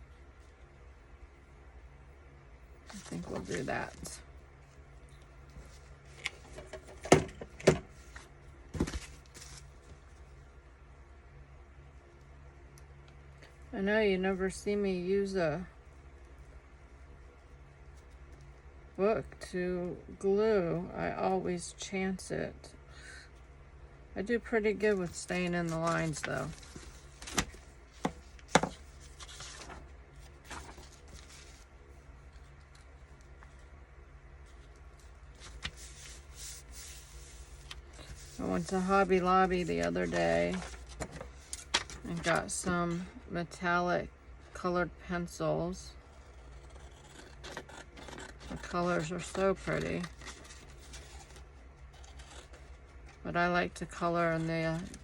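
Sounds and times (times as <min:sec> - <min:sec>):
paper rustling: 0:02.9 - 0:04.1, 0:07.9 - 0:10.0, 0:25.0 - 0:31.7, 0:34.4 - 0:42.7, 0:46.1 - 0:53.2, 0:54.0 - 0:55.0.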